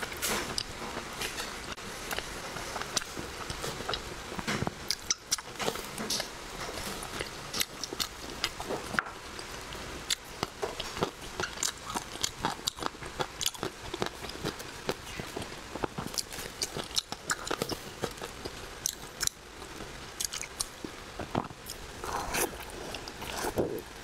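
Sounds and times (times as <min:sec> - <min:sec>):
chewing with wet mouth clicks: 0:10.1 - 0:19.4, 0:20.2 - 0:20.7.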